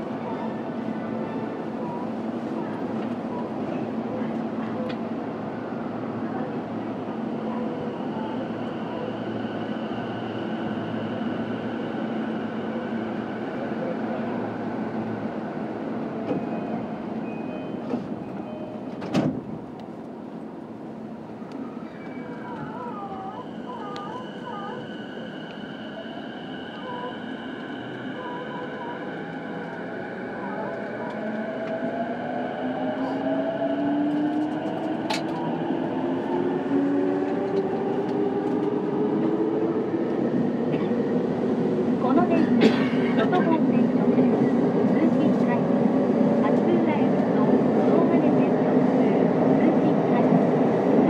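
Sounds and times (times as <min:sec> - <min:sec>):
train wheels rumbling on rail: 0:22.0 - 0:51.0.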